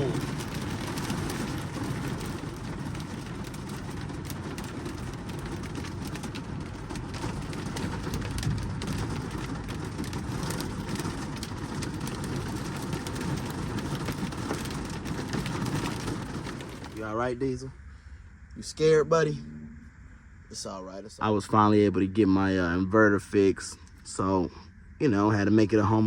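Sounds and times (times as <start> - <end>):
heavy rain on truck cab: 0.0 - 17.7.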